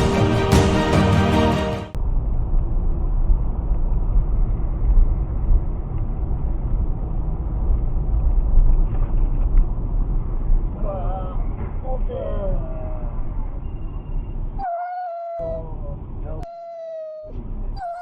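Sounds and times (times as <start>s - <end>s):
music: 0.0s - 2.0s.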